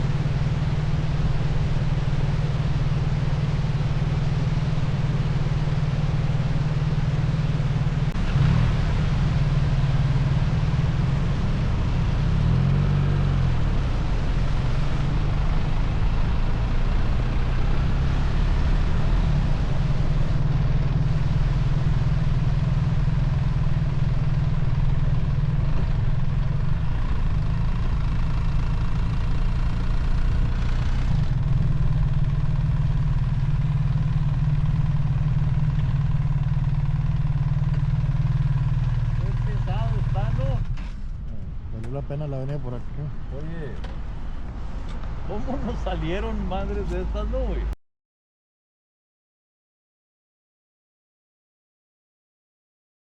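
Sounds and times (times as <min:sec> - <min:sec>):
motorcycle engine drone: 0:00.0 - 0:47.8
riding noise: 0:39.2 - 0:47.8.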